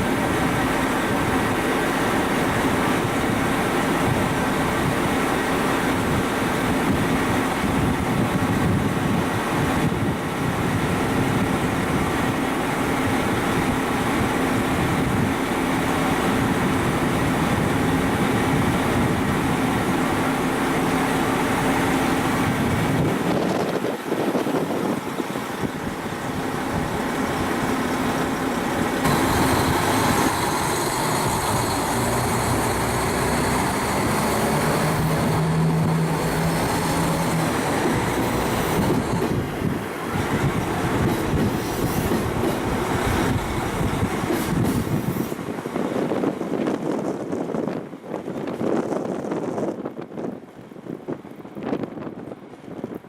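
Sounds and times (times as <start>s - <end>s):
diesel railcar engines humming: 0.0s - 53.0s
wind buffeting microphone: 0.0s - 53.0s.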